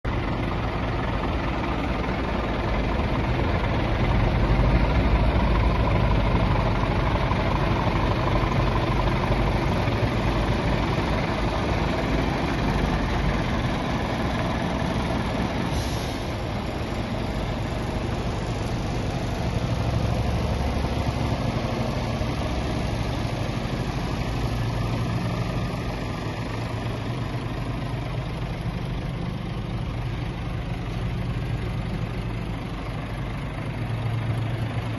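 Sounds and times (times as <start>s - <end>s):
diesel truck engine idling: 0.0s - 34.9s
short air hiss: 15.6s - 16.4s.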